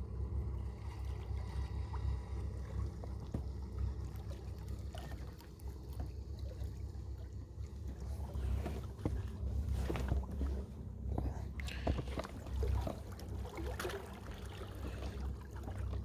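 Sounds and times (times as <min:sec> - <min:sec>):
wind and water rumble: 0:00.0 - 0:16.0.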